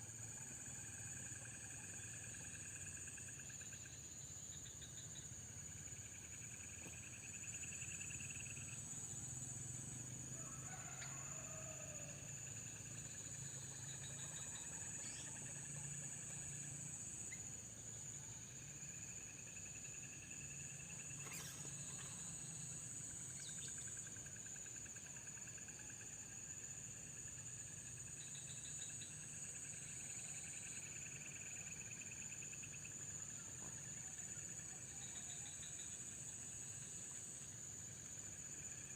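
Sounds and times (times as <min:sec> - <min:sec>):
insects chirring: 0:00.0 - 0:38.9
rattling insect trills: 0:00.0 - 0:38.9.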